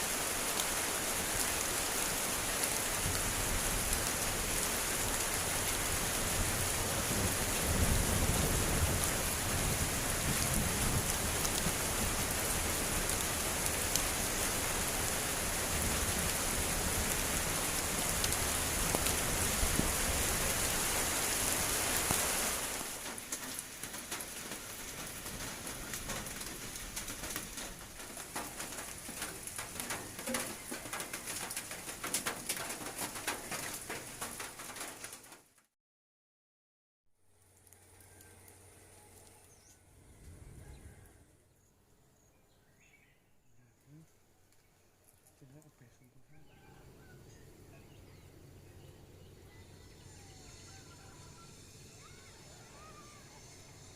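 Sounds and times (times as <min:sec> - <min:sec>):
heavy rain pouring: 0:00.0 - 0:35.5
water drips: 0:22.8 - 0:35.4.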